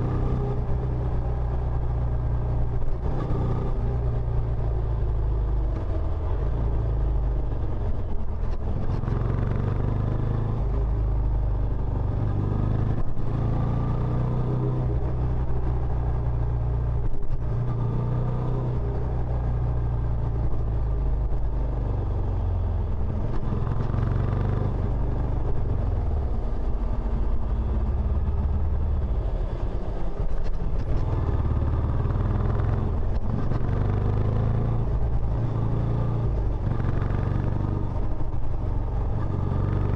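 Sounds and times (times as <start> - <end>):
motorcycle engine revving: 21.4 - 29.8, 30.6 - 39.9.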